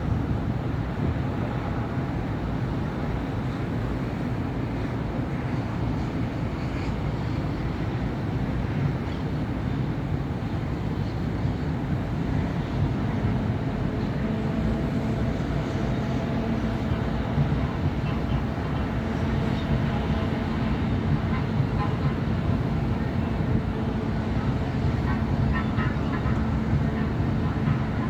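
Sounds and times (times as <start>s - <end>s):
steady engine hum: 0.0s - 28.0s.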